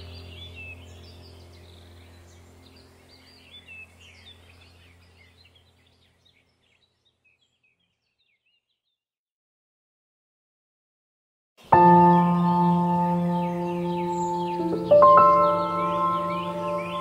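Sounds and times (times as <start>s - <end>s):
steady low hum: 0.0s - 7.2s
small birds chirping: 0.0s - 9.0s, 11.6s - 17.0s.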